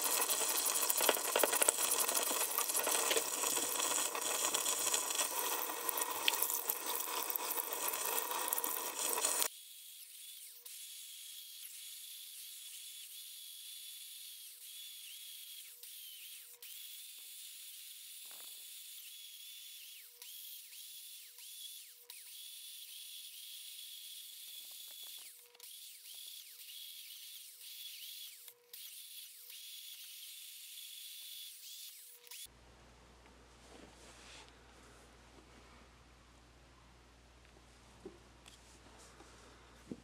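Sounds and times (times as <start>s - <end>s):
small power tool whining: 0.0s - 32.5s.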